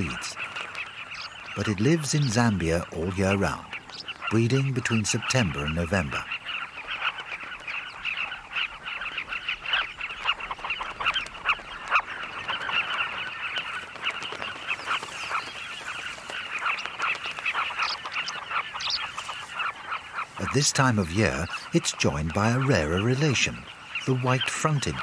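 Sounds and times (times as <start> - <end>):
colony of birds chattering: 0.0 - 25.0.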